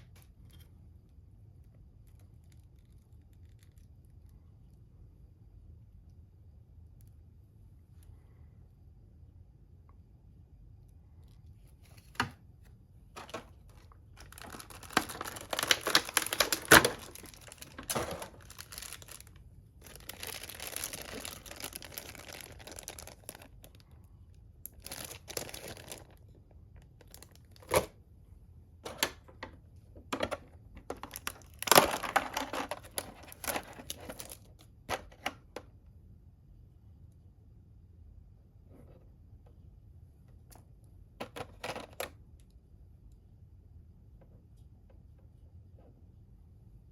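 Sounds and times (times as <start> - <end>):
packaging rustling and tearing: 13.2 - 23.8, 24.7 - 26.2, 30.9 - 34.4.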